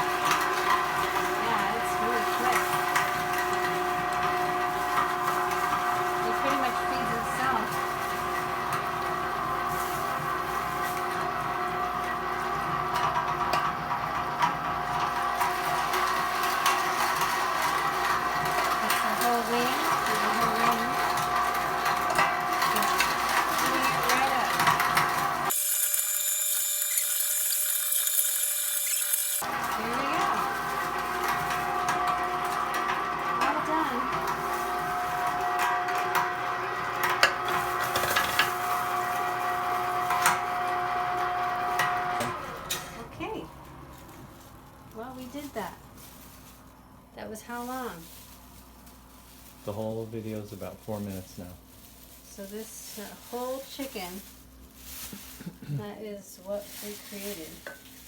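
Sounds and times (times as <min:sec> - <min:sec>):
meat grinder motor whining: 0:00.0 - 0:44.6.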